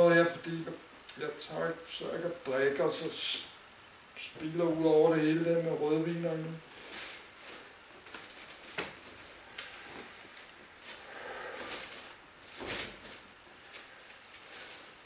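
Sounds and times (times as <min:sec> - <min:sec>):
fabric rustling: 0:06.6 - 0:15.0.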